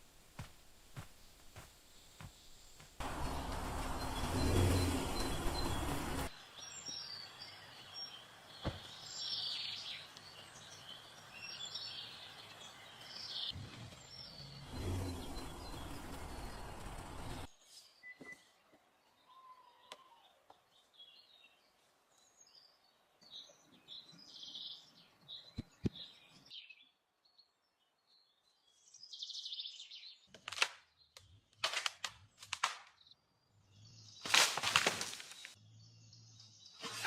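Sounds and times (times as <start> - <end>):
birds chirping and calling: 10.7 - 17.5.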